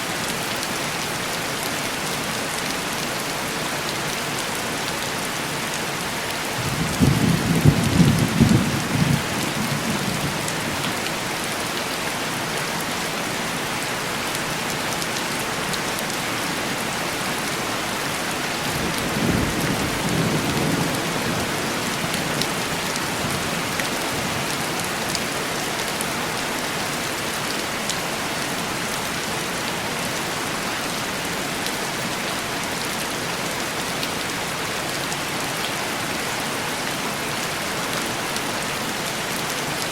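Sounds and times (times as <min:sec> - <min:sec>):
heavy rain on window glass: 0:06.2 - 0:11.8, 0:17.9 - 0:26.0.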